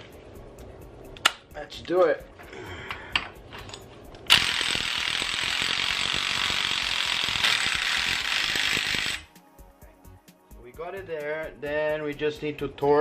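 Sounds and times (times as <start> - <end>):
impact wrench hammering a nut: 4.3 - 9.3.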